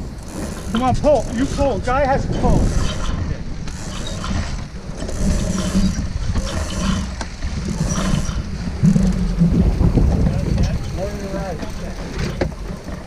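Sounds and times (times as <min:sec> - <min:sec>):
winch ratcheting: 0:00.0 - 0:13.0
wind buffeting microphone: 0:00.0 - 0:13.0.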